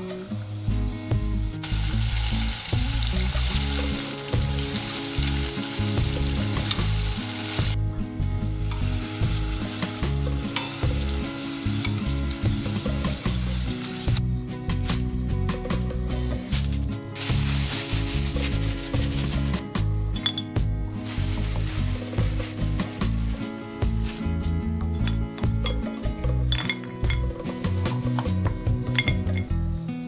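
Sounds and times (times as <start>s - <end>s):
oil sizzling and bubbling: 0.0s - 14.2s, 17.2s - 19.6s, 21.0s - 29.4s
metal tongs stirring: 24.9s - 29.5s.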